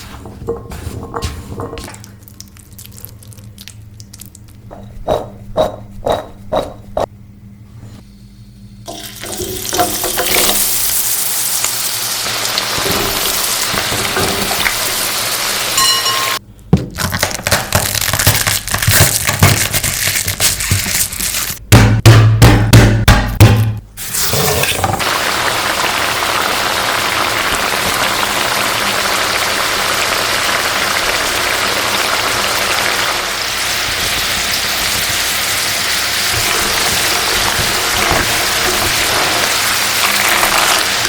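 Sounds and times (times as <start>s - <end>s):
utensils knocking on pan: 4.7s - 7.1s, 12.7s - 14.8s, 15.8s - 16.4s
hot oil sizzling: 8.9s - 16.4s, 24.0s - 41.0s.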